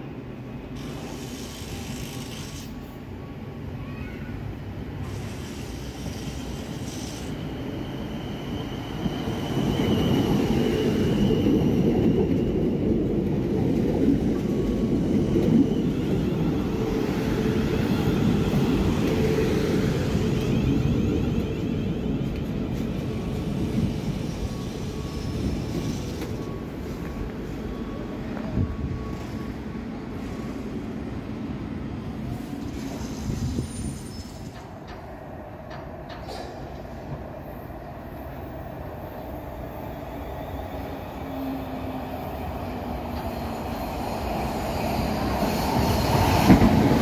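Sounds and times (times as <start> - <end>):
train rumbling on rails: 0.0 - 47.0.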